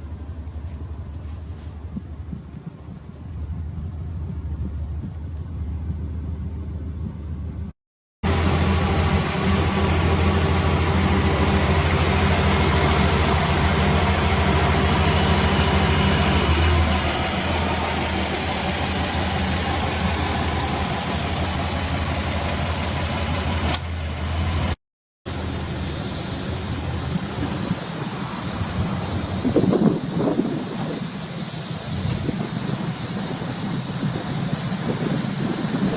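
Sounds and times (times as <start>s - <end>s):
car engine idling: 3.2s - 35.9s
click: 23.7s - 23.9s.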